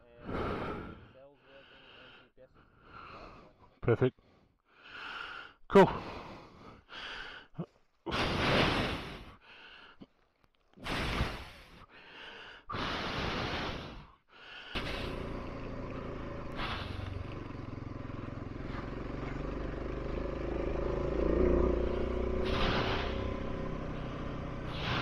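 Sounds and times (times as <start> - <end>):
motorcycle engine running: 14.8 - 25.0.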